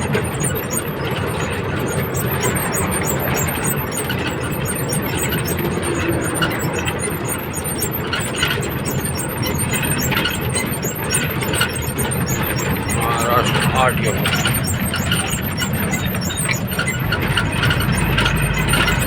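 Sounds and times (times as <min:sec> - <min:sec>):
sharp squeaks: 0:00.0 - 0:19.0
truck engine drone: 0:00.0 - 0:19.0.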